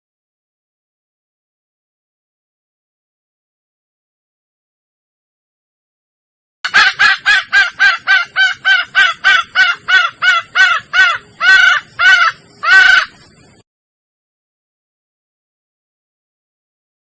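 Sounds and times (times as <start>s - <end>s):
junglefowl hen clucking: 6.7s - 13.3s.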